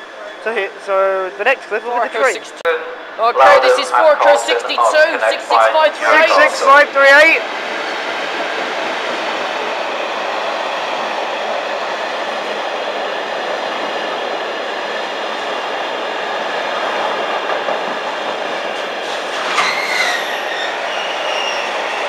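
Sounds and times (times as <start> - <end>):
freight train rumbling past: 0.0 - 22.0
train wheel squeal: 19.0 - 22.0.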